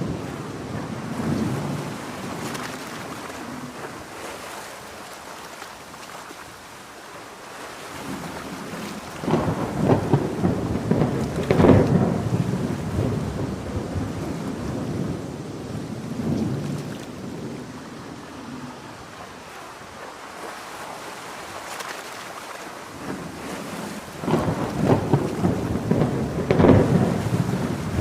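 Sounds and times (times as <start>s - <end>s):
thunder rumbling: 0.0s - 3.8s, 8.0s - 19.4s, 22.9s - 28.0s
heavy rain falling: 0.0s - 5.2s, 6.4s - 22.1s, 22.7s - 28.0s.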